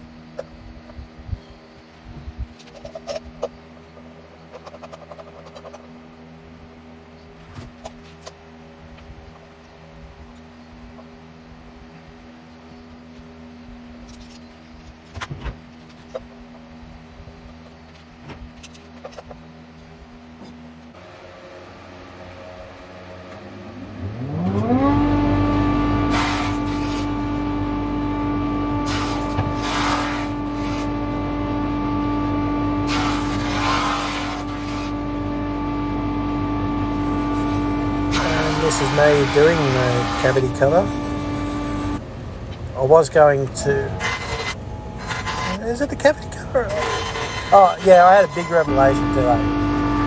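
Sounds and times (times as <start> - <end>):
steady low hum: 0.0 - 50.0
power tool motor whine: 21.0 - 50.0
hissing burst: 25.4 - 31.2, 32.8 - 35.2, 36.9 - 50.0.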